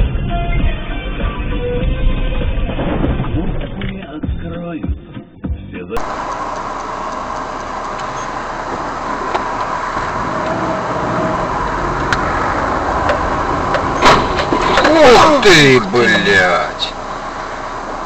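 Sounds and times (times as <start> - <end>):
music: 0.0 - 6.0
car road and engine noise: 0.0 - 18.0.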